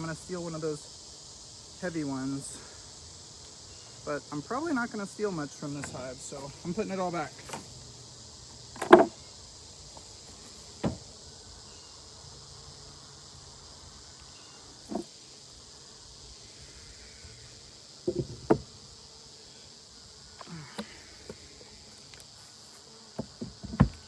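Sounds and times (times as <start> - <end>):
high insect trill: 0.0 - 24.0
wooden knocks of hive frames: 5.6 - 7.9, 8.5 - 11.3, 14.8 - 15.2, 18.0 - 19.0, 20.3 - 24.0.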